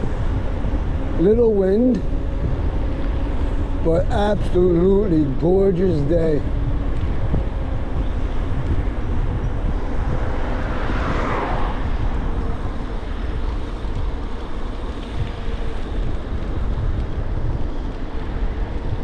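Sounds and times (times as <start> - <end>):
faint steady hum: 0.0 - 19.0
wind rumbling on microphone: 0.0 - 19.0.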